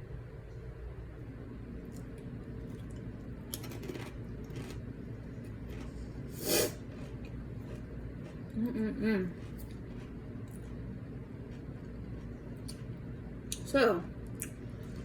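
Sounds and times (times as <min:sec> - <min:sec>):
chewing chips: 0:01.8 - 0:13.7.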